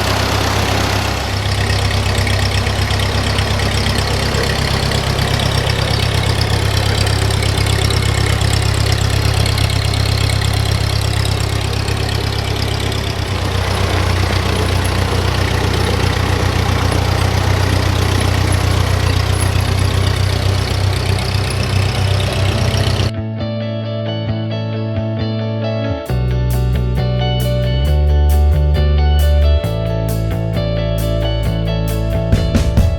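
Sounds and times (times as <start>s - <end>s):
tractor engine idling: 0.0s - 23.1s.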